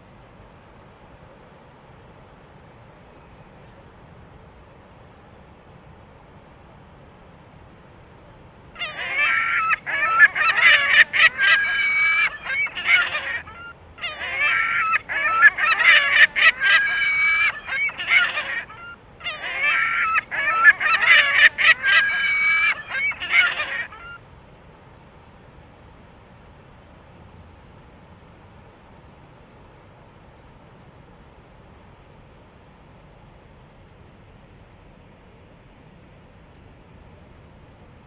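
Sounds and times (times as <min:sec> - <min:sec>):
bird calls: 0:08.8 - 0:24.2.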